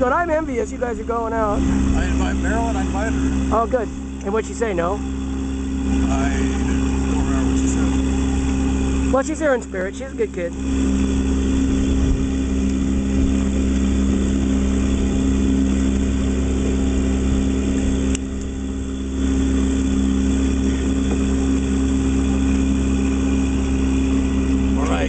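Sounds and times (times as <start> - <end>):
boat engine humming: 0.0 - 25.0
click: 18.1 - 18.5.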